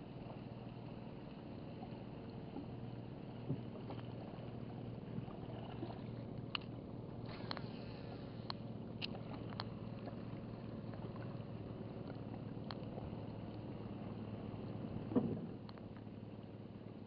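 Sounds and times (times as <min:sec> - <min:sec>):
small boat engine running: 0:00.0 - 0:17.0.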